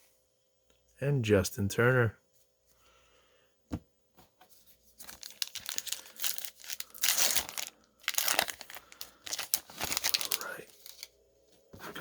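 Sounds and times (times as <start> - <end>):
foil wrapper crinkling and tearing: 5.0 - 11.1.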